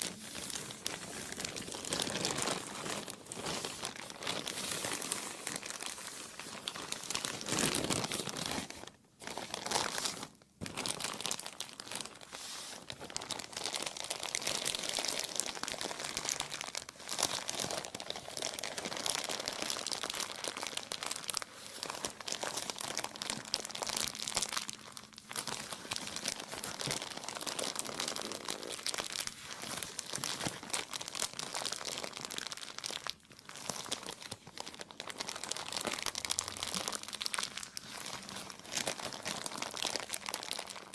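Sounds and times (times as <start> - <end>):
plastic crumpling and crinkling: 0.0 - 40.9.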